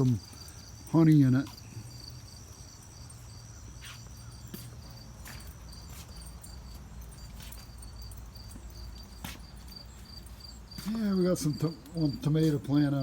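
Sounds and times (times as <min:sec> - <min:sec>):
crickets chirping: 0:00.0 - 0:13.0
soft scuffs of movement: 0:03.7 - 0:13.0.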